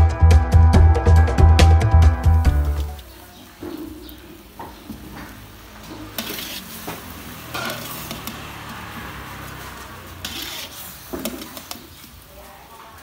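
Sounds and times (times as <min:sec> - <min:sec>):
shrimp sizzling in hot oil: 0:02.7 - 0:12.8
metal spatula scraping wok: 0:05.4 - 0:12.3.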